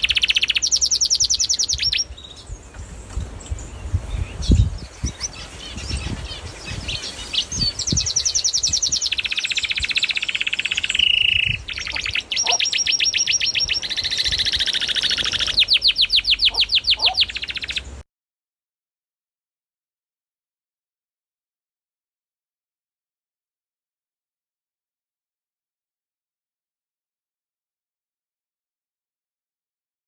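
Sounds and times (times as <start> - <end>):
bird chirps: 0.0 - 18.0
songbird singing fast trills: 0.0 - 18.0.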